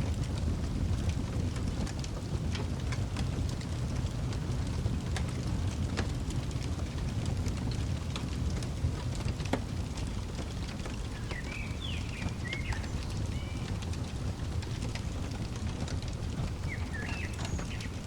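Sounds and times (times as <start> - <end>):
wood fire crackling: 0.0 - 18.0
bird chirping: 11.1 - 13.8, 16.4 - 18.0.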